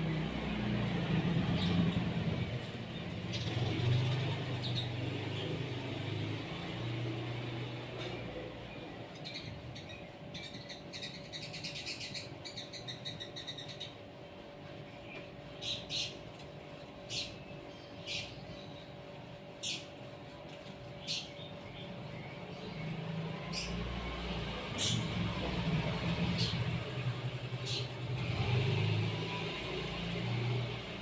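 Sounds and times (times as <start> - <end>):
small songbirds chirping: 1.1 - 6.6, 8.8 - 14.0, 17.0 - 20.0, 20.9 - 29.1.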